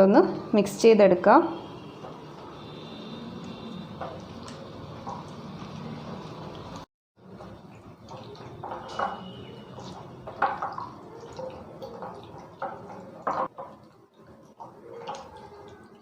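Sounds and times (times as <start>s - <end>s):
hand squishing chicken in marinade: 7.5s - 13.2s.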